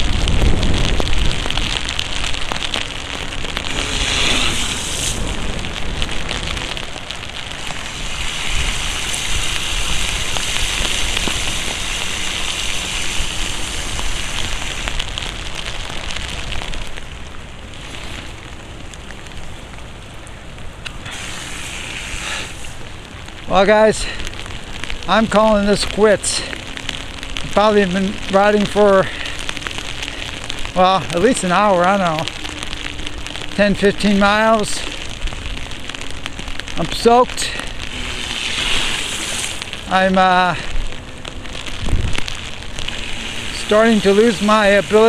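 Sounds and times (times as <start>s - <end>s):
continuous hiss of rain: 0.0s - 45.0s
raindrops ticking on microphone: 0.0s - 45.0s.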